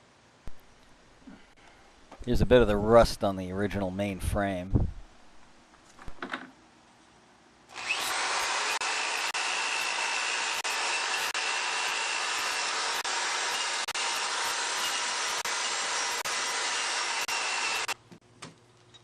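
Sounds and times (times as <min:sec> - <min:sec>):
power tool stripping rust: 0:07.7 - 0:18.0.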